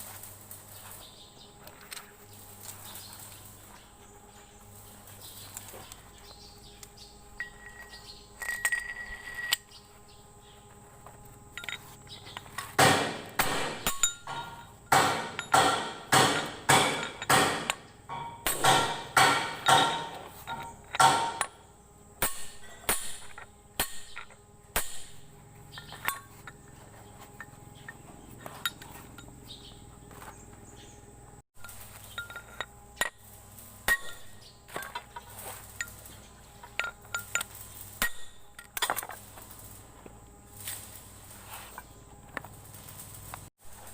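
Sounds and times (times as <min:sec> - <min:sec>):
light knocks and clinks: 0:05.2 - 0:09.8, 0:11.0 - 0:12.8, 0:13.8 - 0:21.7, 0:25.4 - 0:31.0, 0:31.6 - 0:39.8
hammer striking metal: 0:12.6 - 0:26.6, 0:31.6 - 0:39.0.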